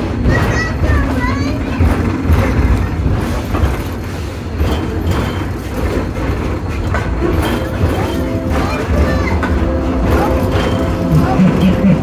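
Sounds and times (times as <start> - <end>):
clanks and rattles: 0.0 - 12.0
train car rolling on track: 0.0 - 12.0.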